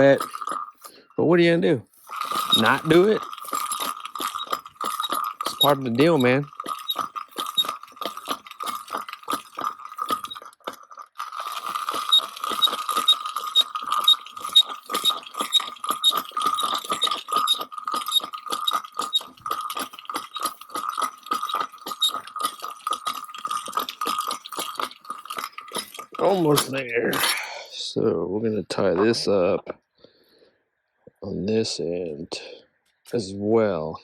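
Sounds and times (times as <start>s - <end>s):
wire reel clicking rapidly: 0.0s - 0.9s, 1.9s - 26.8s.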